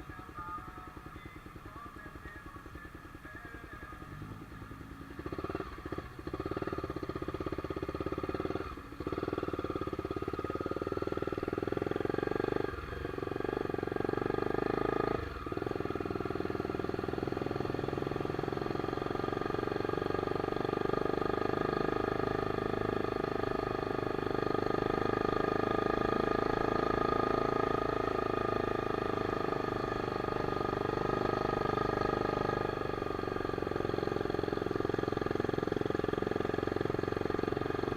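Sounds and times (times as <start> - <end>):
motorcycle engine running: 0.0 - 37.9.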